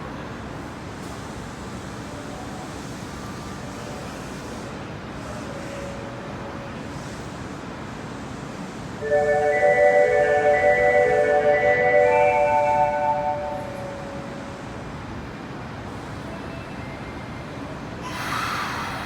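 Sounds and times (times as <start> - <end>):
subway platform rumbling hiss: 0.0 - 19.0
electronic chime melody: 9.0 - 14.6.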